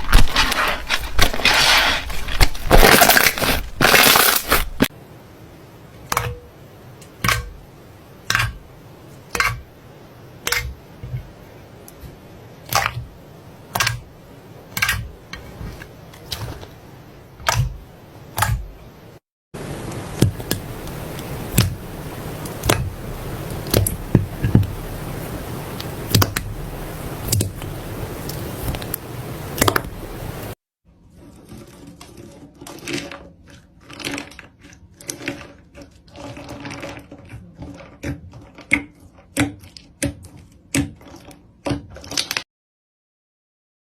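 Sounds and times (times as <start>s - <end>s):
steady hiss: 16.7s - 30.6s.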